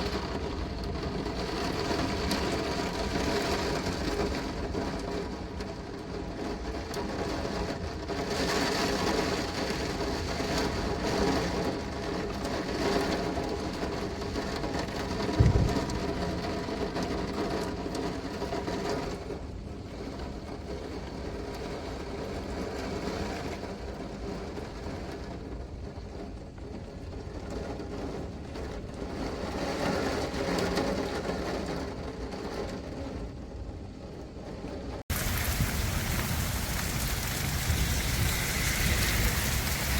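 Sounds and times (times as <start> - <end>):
heavy rain: 0.0 - 19.3, 35.1 - 39.9
gusting wind: 14.9 - 16.9, 34.8 - 39.9
low thud: 15.2 - 16.3.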